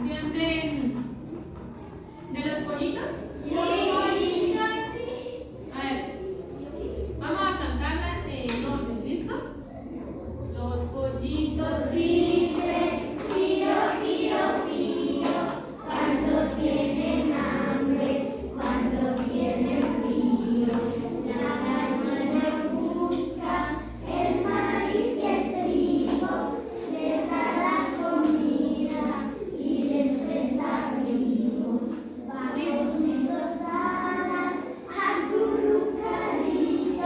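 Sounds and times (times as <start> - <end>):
children singing: 3.4 - 5.4, 11.5 - 37.0.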